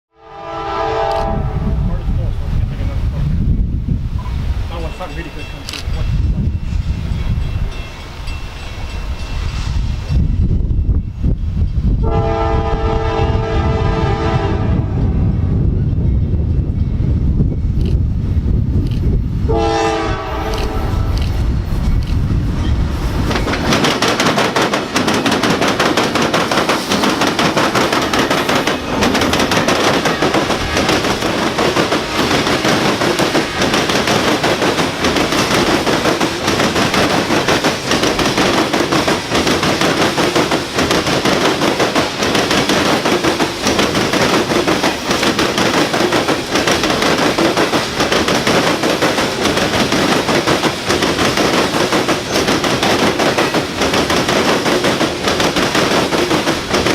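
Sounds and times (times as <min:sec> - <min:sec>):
train wheels clattering over track: 0:18.7 - 0:56.9.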